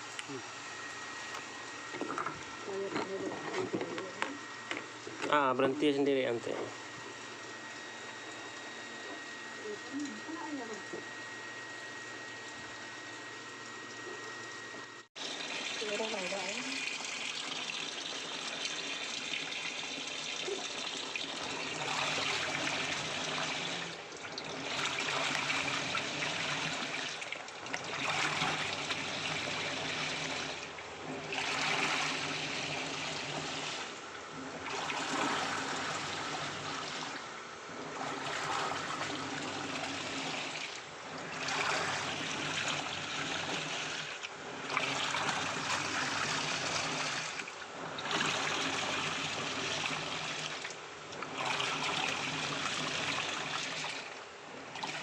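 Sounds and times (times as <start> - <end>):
low motor hum: 0.0 - 15.1
water sloshing in washing machine: 0.0 - 55.0.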